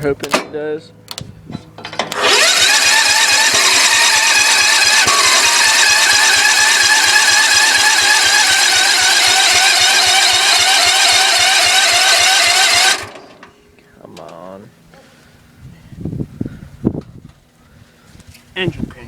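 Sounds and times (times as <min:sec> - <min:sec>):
electric starter cranking engine: 0:01.8 - 0:13.5.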